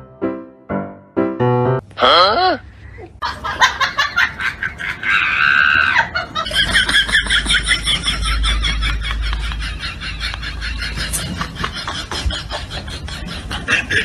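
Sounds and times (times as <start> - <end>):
low rumble: 6.6 - 12.8.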